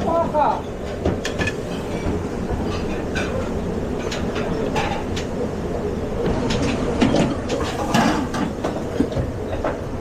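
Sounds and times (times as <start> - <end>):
kitchen rumble: 0.6 - 9.9
pans and utensils clattering: 1.0 - 5.4, 6.4 - 9.2.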